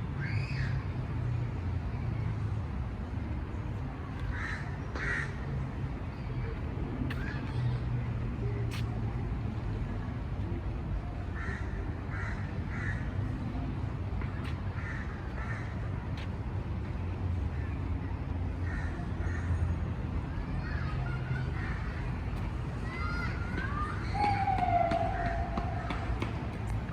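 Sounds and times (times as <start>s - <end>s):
bird calling: 23.2s - 26.4s.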